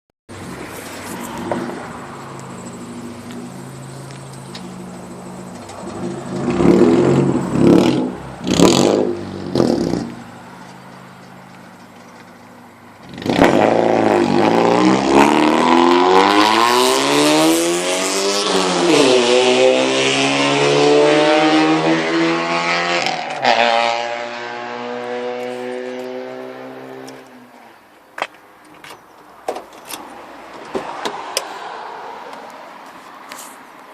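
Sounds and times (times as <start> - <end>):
loud car engine revving: 0.4 - 10.4, 12.9 - 27.3.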